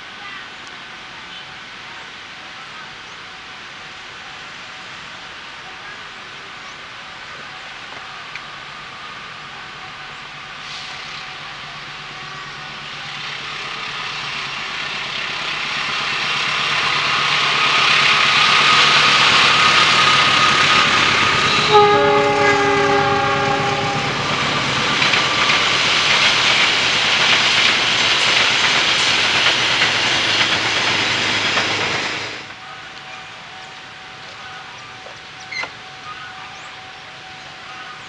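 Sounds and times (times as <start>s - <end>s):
train wheels and running noise: 0.0s - 38.0s
train horn: 18.6s - 24.7s, 32.7s - 38.0s.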